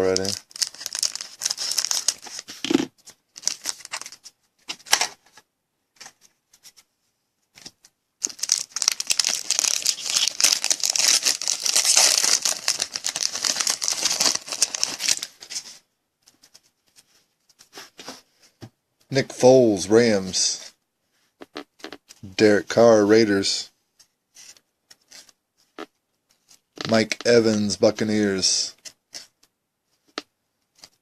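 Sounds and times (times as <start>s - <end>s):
wrapper crinkling: 0.0s - 4.2s, 8.2s - 15.6s.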